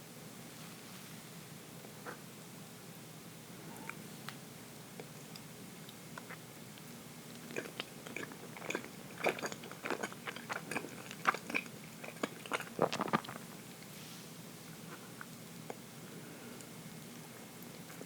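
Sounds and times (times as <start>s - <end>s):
close chewing with wet mouth clicks: 5.0s - 13.4s.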